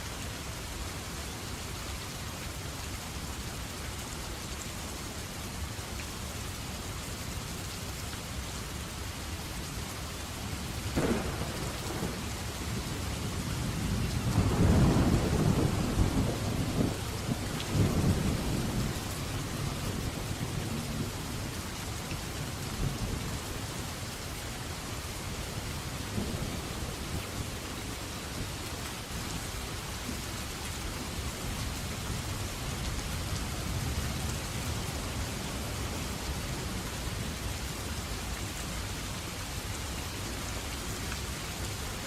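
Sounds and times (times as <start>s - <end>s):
steady rainfall: 0.0s - 42.0s
sharp thunderclap: 11.0s - 12.4s, 14.2s - 18.9s
rolling rumble of thunder: 11.0s - 21.4s.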